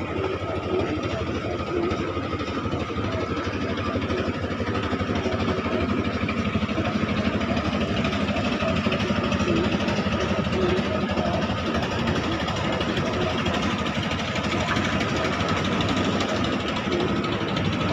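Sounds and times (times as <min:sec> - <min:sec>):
boat engine running: 0:00.0 - 0:17.9.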